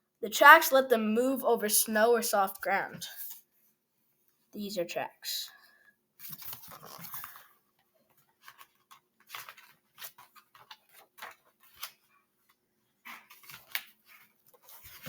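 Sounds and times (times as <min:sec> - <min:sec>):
book pages rustling and turning: 0:06.2 - 0:15.0.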